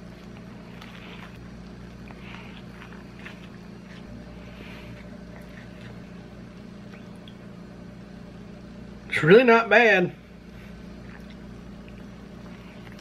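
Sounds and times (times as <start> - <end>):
chewing and mouth sounds: 0.0 - 7.5, 10.4 - 13.0
steady low hum: 0.0 - 13.0.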